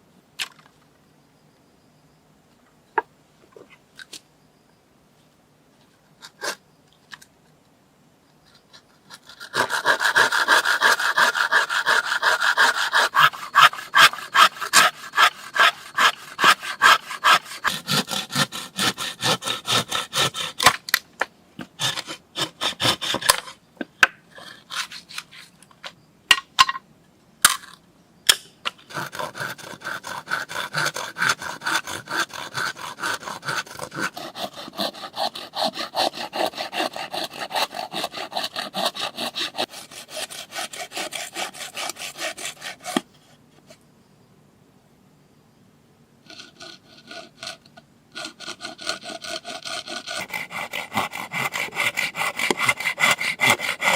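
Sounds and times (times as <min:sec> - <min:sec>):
blade cutting wood by hand: 0:08.4 - 0:26.0, 0:28.3 - 0:43.8, 0:46.3 - 0:53.9.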